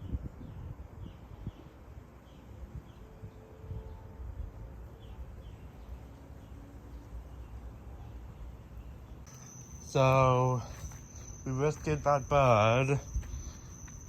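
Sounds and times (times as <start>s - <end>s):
low rumble of wind: 0.0s - 14.0s
faint high chirps: 9.2s - 14.0s.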